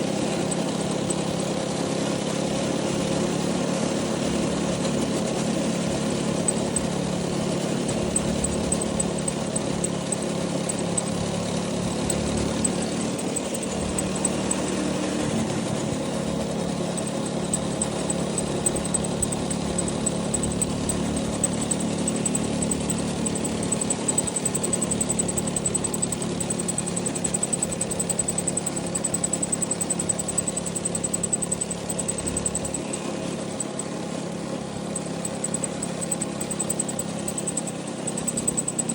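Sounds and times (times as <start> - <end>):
go-kart engine idling: 0.0 - 38.9.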